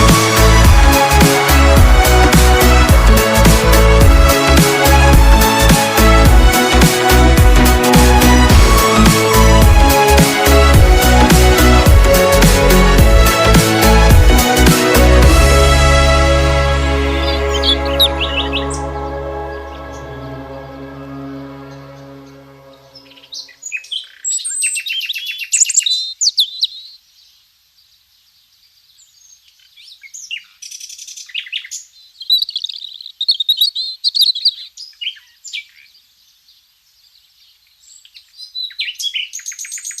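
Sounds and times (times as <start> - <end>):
background music chord: 0.0 - 23.5
birds chirping and singing: 17.2 - 27.0, 29.0 - 36.0.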